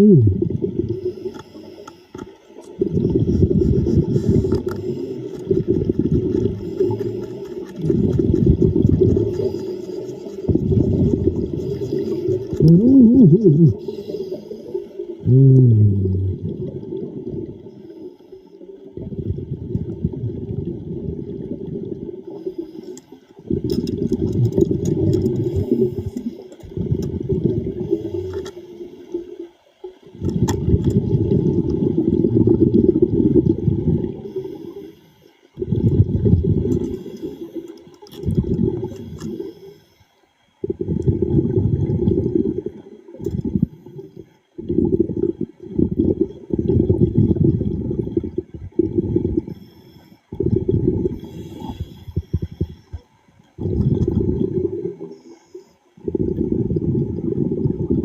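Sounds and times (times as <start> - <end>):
underwater air bubbles gurgling: 0.0 - 58.0.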